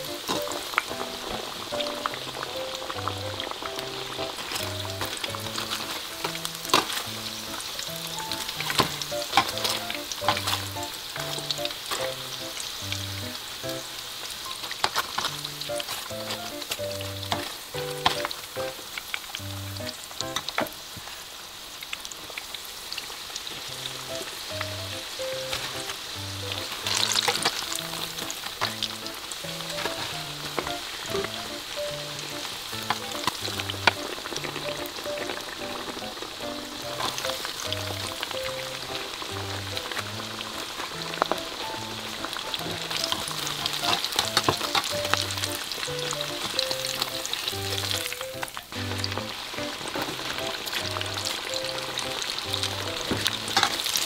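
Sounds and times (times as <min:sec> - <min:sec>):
oil popping: 0:00.0 - 0:13.9, 0:23.6 - 0:54.0
peppers frying in hot oil: 0:00.0 - 0:54.0.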